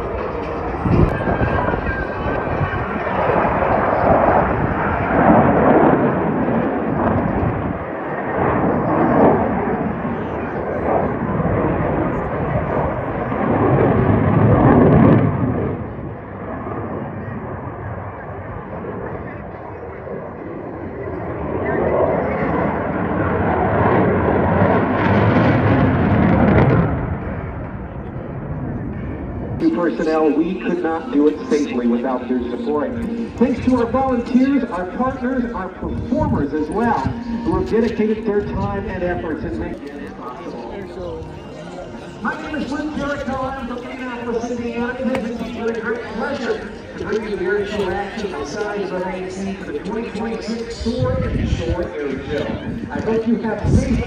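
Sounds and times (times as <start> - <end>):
aircraft roar overhead: 0.0 - 54.0.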